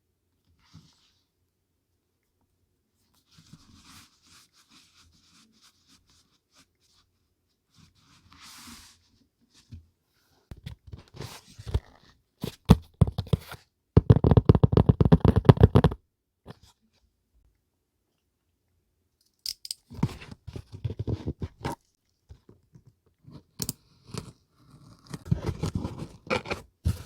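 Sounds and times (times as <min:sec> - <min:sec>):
paper and packaging rustling: 0:25.2 - 0:27.0.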